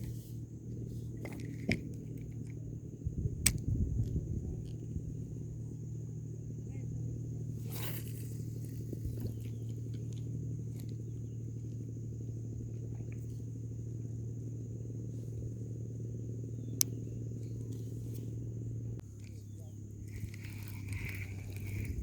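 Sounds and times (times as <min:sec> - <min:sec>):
low steady hum: 0:00.0 - 0:22.0
high-pitched insect drone: 0:04.6 - 0:22.0.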